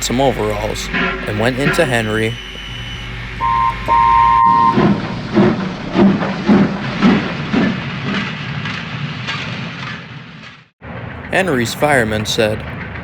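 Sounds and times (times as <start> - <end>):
steam locomotive chuffing: 0.0 - 13.0
two-note steam whistle: 0.9 - 5.0.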